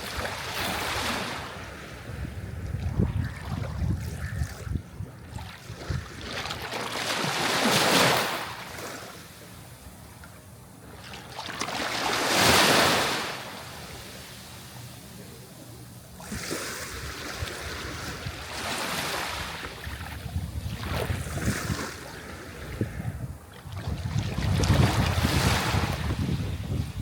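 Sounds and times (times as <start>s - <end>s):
wind on microphone: 0.0s - 6.7s, 16.2s - 18.6s, 19.3s - 27.0s
sea waves breaking on shore: 0.0s - 27.0s.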